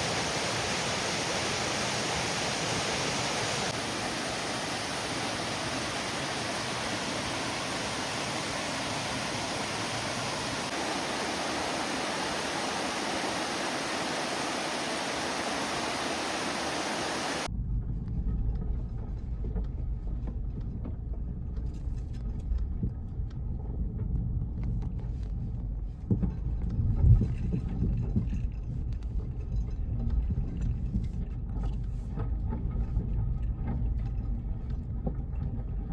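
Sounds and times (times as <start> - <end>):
car driving rumble: 17.4 - 35.9
light rattles and clicks: 17.6 - 35.9.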